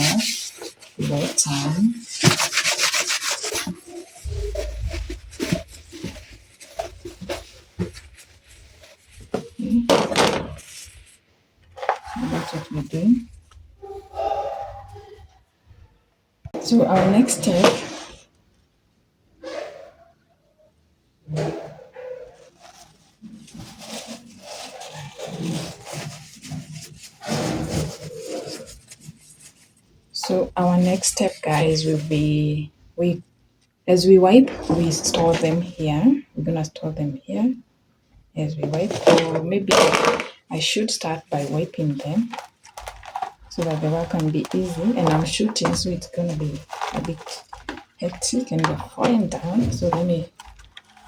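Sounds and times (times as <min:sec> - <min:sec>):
towel rubbing on plastic container: 0:00.0 - 0:11.2, 0:11.8 - 0:13.6, 0:16.7 - 0:18.2, 0:22.0 - 0:32.3, 0:34.5 - 0:36.2, 0:38.6 - 0:51.0.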